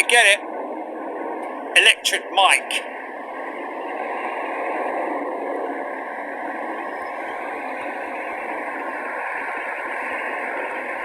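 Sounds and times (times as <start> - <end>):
radio static hiss: 0.0 - 0.4, 1.8 - 2.8.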